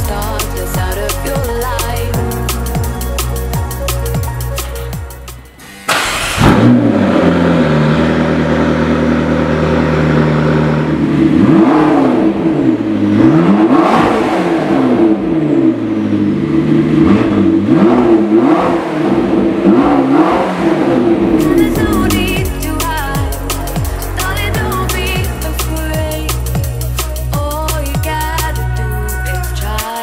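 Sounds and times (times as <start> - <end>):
car engine starting and idling: 0.0 - 30.0
car engine revving in quick blips: 5.9 - 25.1.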